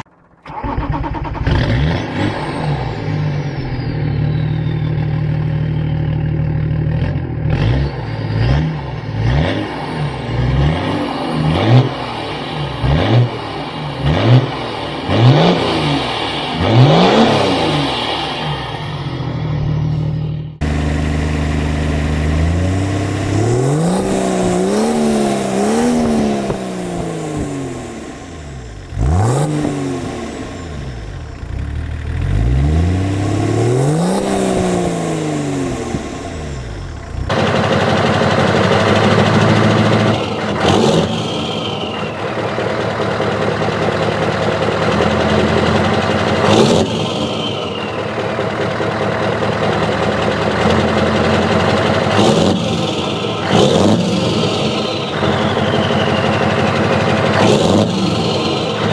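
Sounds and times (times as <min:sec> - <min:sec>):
diesel engine running clattery: 0:00.0 - 0:58.9
turbodiesel engine revving: 0:00.0 - 0:58.9
falling whistle: 0:03.1 - 0:06.1, 0:41.1 - 0:42.4, 0:47.2 - 0:48.2, 0:54.8 - 0:56.9.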